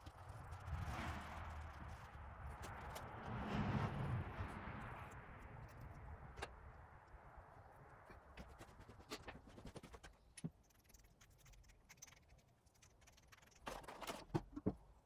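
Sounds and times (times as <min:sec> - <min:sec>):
faint clicks and taps of metal parts: 0:08.1 - 0:11.8.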